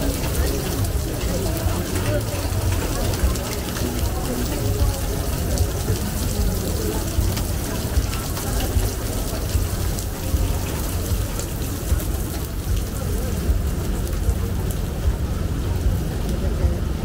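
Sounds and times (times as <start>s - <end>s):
low steady rain rumble: 0.0s - 17.0s
raindrop ticks: 0.0s - 17.0s.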